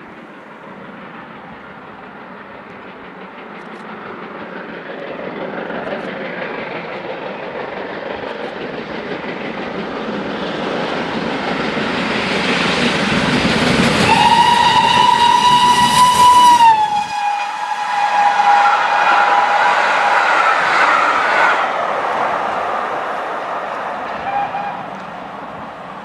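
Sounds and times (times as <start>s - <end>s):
train rumble: 0.0s - 26.0s
train whistle: 14.0s - 21.8s, 24.2s - 25.0s.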